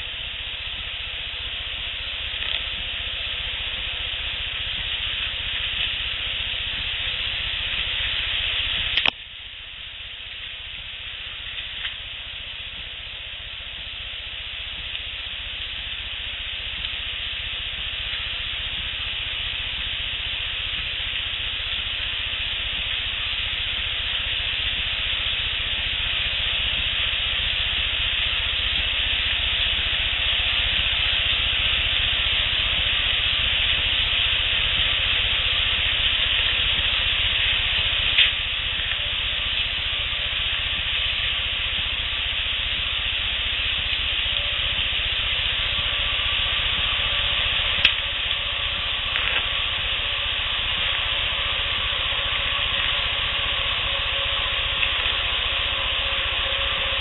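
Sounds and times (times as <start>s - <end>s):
steady hiss: 0.0s - 57.0s
sharp clicks: 8.9s - 9.2s.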